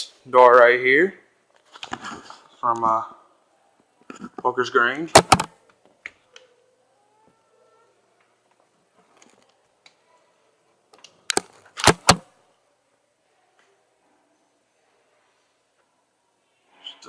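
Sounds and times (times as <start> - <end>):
door handle and latch clacks: 5.2 - 5.5, 11.8 - 12.2.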